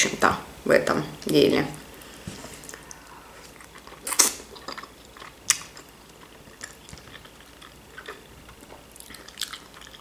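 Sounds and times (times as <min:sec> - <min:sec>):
person biting and chewing: 0:03.4 - 0:10.0
wet mouth clicks: 0:03.6 - 0:04.9.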